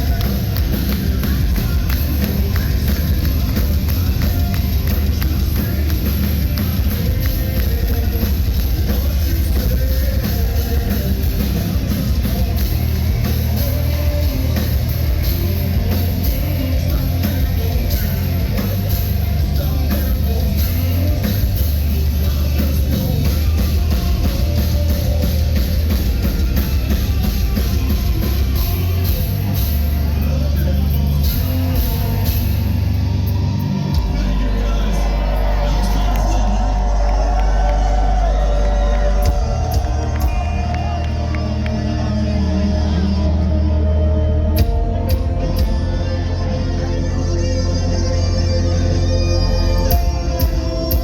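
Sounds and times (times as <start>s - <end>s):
person singing: 0.0s - 33.0s
heavy metal band playing live: 0.0s - 51.0s.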